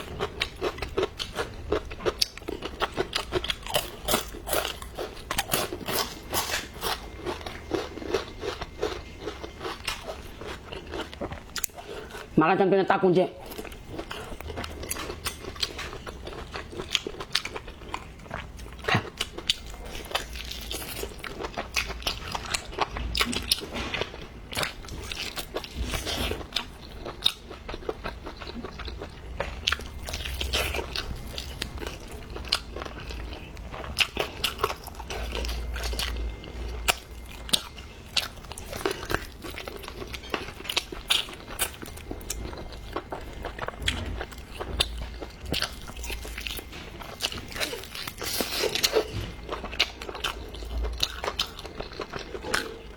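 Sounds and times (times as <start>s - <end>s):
person chewing and biting food: 0.0s - 12.3s, 13.4s - 52.9s.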